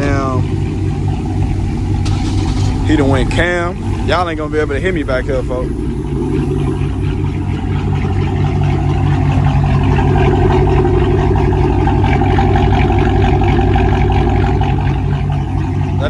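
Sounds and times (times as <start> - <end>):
car engine idling with choppy rumble: 0.0 - 16.0.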